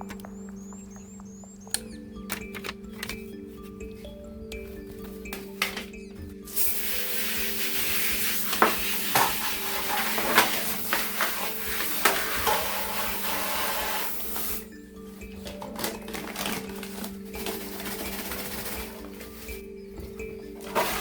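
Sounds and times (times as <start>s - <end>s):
soft background music: 0.0s - 21.0s
running water hissing: 5.8s - 15.4s, 16.3s - 21.0s
parts clattering under water: 15.2s - 21.0s.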